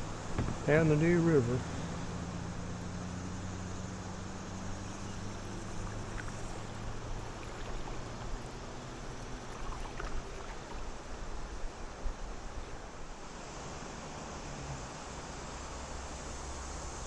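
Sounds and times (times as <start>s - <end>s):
low steady hum: 0.0s - 17.0s
water washing along a kayak: 0.0s - 17.0s
faint drips: 4.8s - 13.0s.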